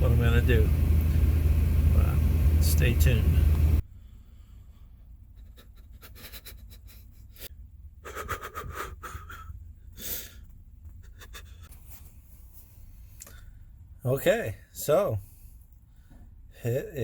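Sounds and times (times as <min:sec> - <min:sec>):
person breathing: 0:03.9 - 0:05.1.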